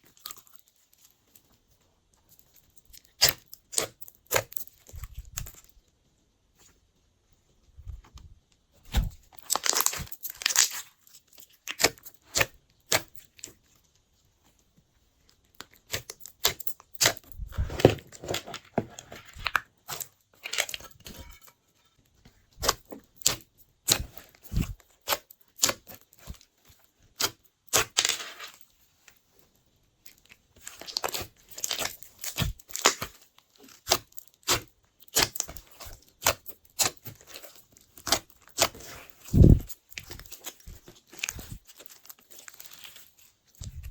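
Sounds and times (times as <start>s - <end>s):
slime being kneaded by hand: 7.9s - 13.7s, 15.4s - 21.3s, 22.3s - 28.6s, 30.2s - 43.9s.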